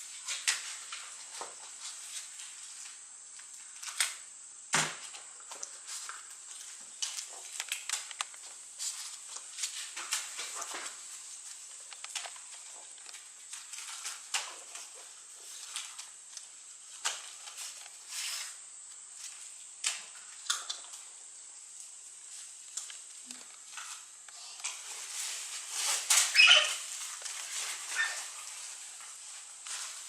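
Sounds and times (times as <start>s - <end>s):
vulture rustling and pecking: 5.7s - 21.1s, 21.8s - 30.0s.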